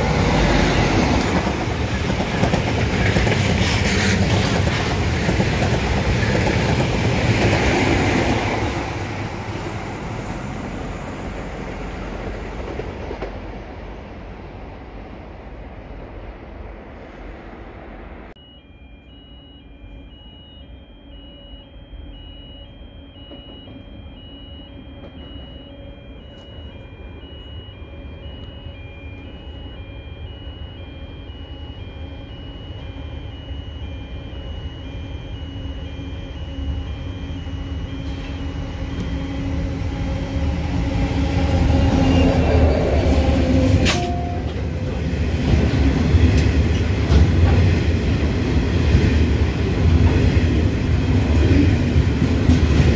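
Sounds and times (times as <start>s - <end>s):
train rumble and engine hum: 0.0s - 18.4s, 22.2s - 29.8s, 30.5s - 52.9s
high repeating beeping tone: 18.4s - 45.2s.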